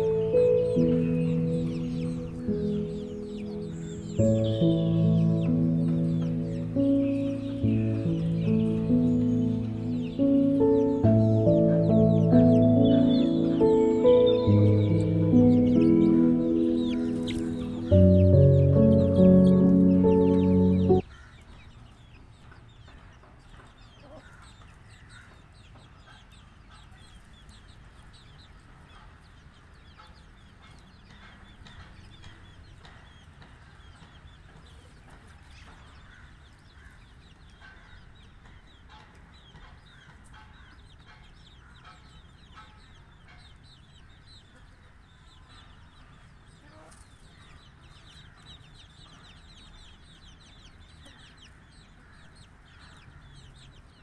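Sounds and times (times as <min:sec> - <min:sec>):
hen clucking: 0:00.0 - 0:21.0
chicks peeping: 0:00.0 - 0:54.0.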